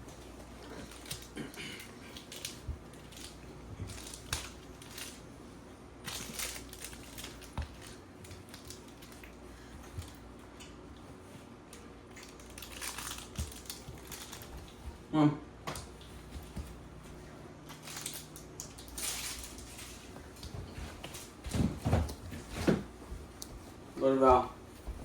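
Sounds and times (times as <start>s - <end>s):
crinkling and rustling: 0.0s - 15.0s, 15.8s - 25.0s.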